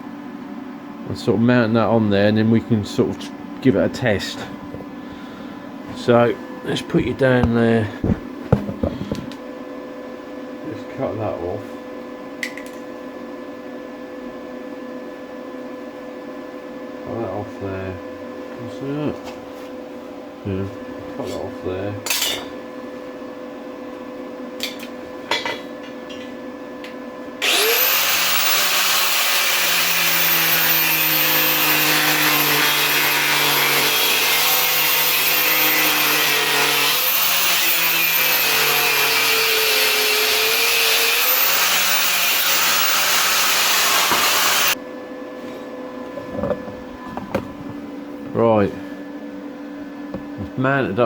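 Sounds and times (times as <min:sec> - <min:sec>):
angle grinder cutting steel: 0:27.4 - 0:44.8.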